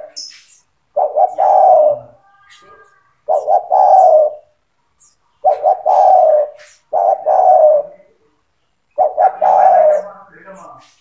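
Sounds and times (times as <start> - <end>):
dove cooing: 0.0 - 0.2, 0.9 - 10.3.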